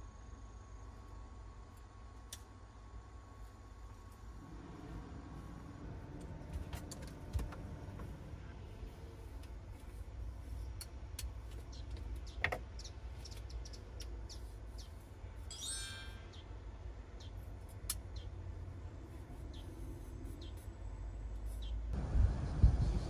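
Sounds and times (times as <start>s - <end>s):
steady low rumble: 0.0s - 15.5s, 16.3s - 23.0s
birds chirping: 11.5s - 16.5s.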